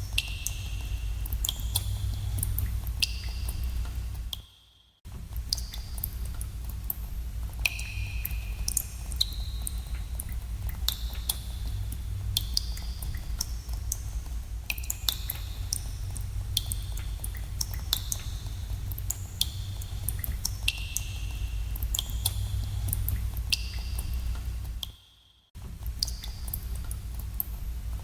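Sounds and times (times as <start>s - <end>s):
steady low rumble: 0.0s - 4.4s, 5.1s - 24.8s, 25.6s - 28.0s
water drops plinking into pool: 0.1s - 4.4s, 7.6s - 14.1s, 14.7s - 24.9s.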